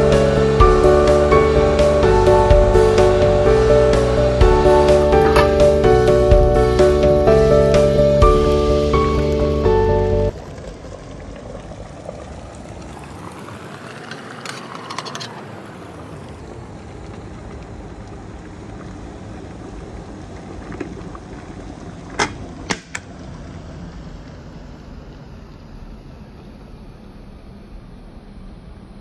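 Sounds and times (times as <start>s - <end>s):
electric kettle heating water: 0.0s - 26.5s
kettle sharp clicks: 22.1s - 23.1s.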